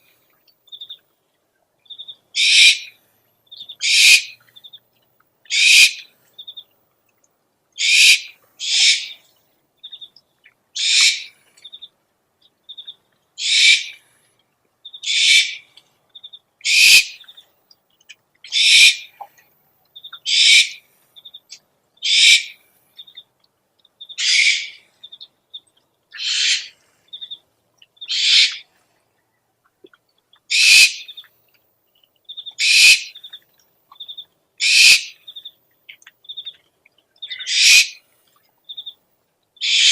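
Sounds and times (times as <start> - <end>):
owl screeching: 2.4 - 2.9, 3.8 - 4.4, 5.5 - 6.0, 7.8 - 9.2, 10.8 - 11.3, 13.4 - 14.0, 15.0 - 15.6, 16.6 - 17.2, 18.5 - 19.1, 20.3 - 20.8, 22.0 - 22.6, 24.2 - 24.8, 26.2 - 26.8, 28.1 - 28.6, 30.5 - 31.1, 32.6 - 33.1, 34.6 - 35.2, 37.3 - 38.0, 39.6 - 39.9.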